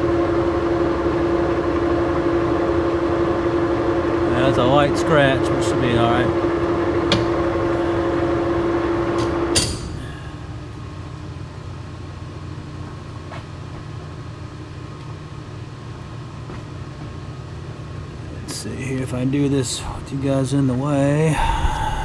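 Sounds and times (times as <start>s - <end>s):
lathe humming: 1.0s - 10.8s.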